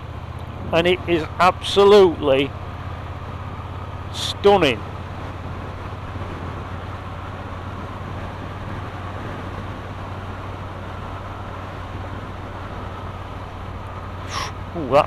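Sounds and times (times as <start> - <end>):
motorcycle engine droning: 0.0 - 15.0
wind rush: 4.4 - 14.7.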